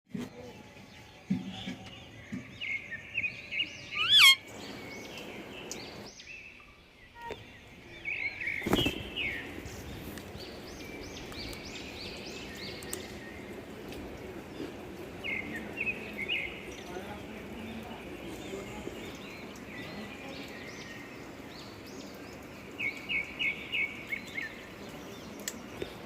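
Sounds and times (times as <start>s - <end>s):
parakeets chirping: 3.8s - 4.8s.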